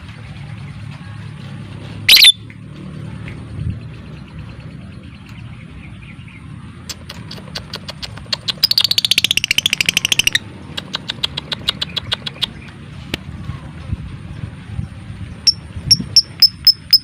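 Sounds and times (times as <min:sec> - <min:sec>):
lovebird ticking and chattering: 0:06.8 - 0:12.8, 0:15.4 - 0:17.0.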